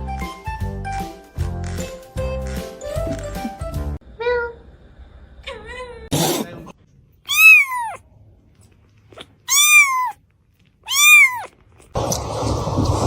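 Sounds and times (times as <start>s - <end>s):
cat meowing: 7.3s - 8.0s, 9.2s - 10.2s, 10.8s - 11.6s.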